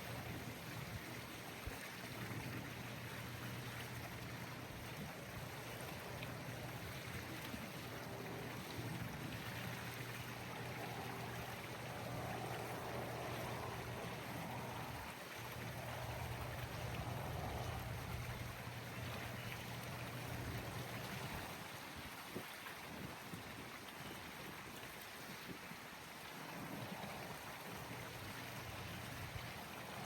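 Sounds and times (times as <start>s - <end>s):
low steady hum: 2.1s - 21.7s.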